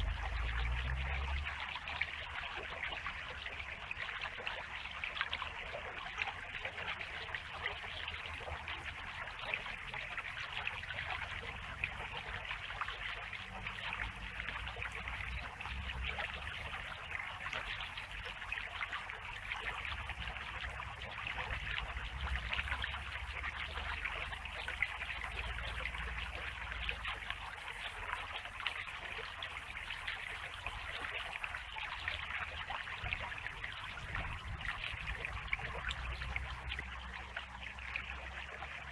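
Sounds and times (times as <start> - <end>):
low rumble: 0.0 - 1.7
stream babbling over stones: 0.0 - 38.9.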